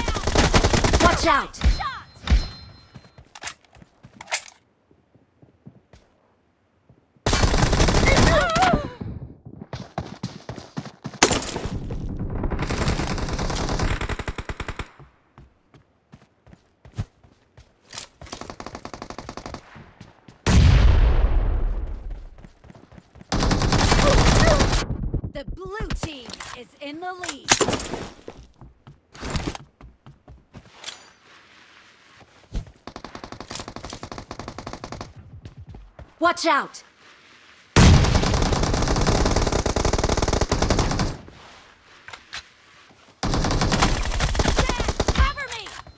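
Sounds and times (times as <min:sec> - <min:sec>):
rapid automatic gunfire: 0:00.0 - 0:01.2, 0:12.2 - 0:14.9, 0:23.3 - 0:24.9, 0:38.1 - 0:41.2, 0:43.2 - 0:45.4.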